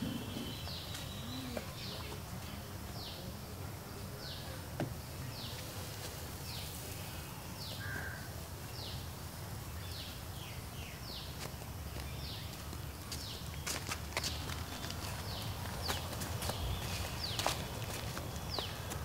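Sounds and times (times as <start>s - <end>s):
bird calling: 0.0s - 2.2s.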